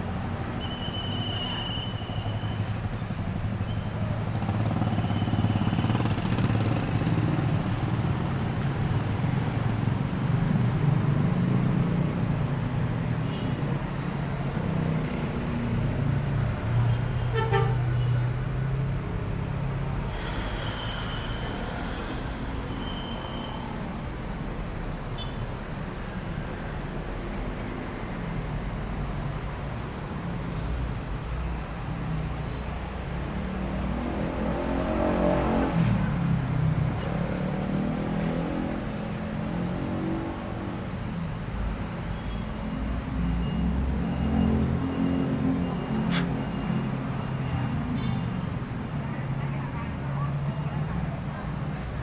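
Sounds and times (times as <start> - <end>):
air brake hiss: 20.0 - 23.8, 45.9 - 46.5.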